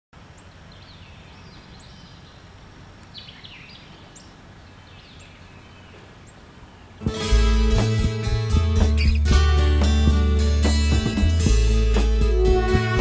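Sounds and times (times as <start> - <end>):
falling whistled bird calls: 9.0 - 9.3
high bird chirps: 9.0 - 9.3.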